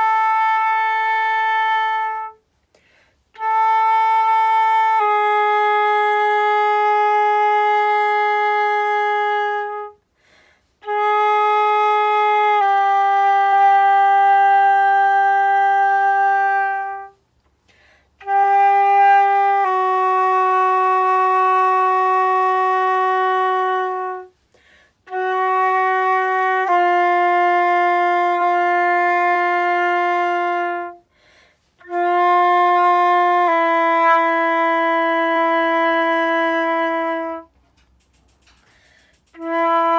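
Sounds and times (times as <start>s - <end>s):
flute playing long tones: 0.0s - 2.4s, 3.3s - 10.0s, 10.8s - 17.2s, 18.2s - 24.4s, 25.0s - 31.1s, 31.7s - 37.6s, 39.2s - 39.9s.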